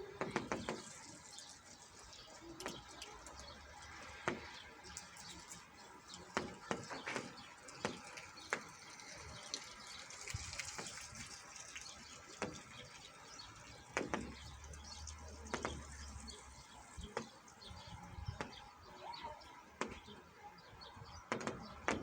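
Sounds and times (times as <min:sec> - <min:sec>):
rain hissing: 0:00.0 - 0:20.2
large raindrops striking close: 0:00.0 - 0:22.0.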